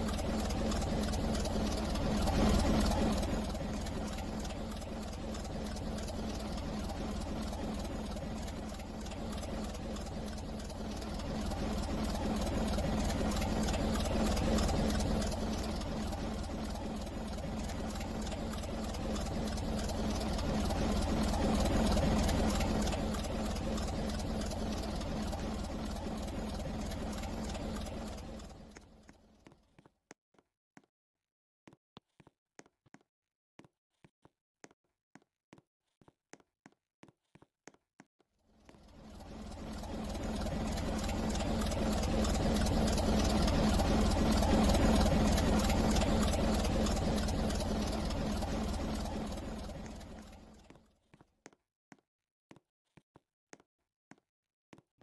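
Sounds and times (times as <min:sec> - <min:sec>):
low hum: 0:00.0 - 0:29.2, 0:38.6 - 0:50.7.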